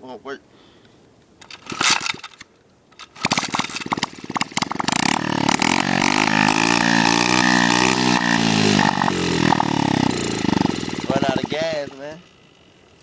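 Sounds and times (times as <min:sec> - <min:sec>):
dirt bike engine running: 0:03.1 - 0:13.0.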